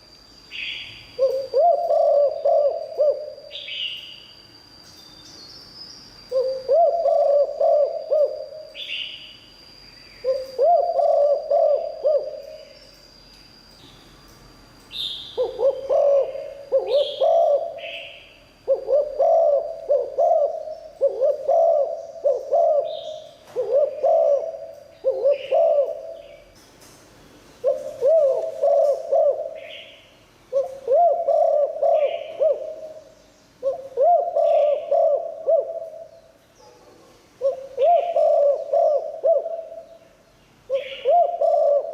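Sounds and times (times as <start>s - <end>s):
dove cooing: 0.5s - 3.9s, 6.3s - 9.0s, 10.2s - 12.8s, 15.4s - 26.4s, 27.6s - 40.0s, 40.7s - 41.9s.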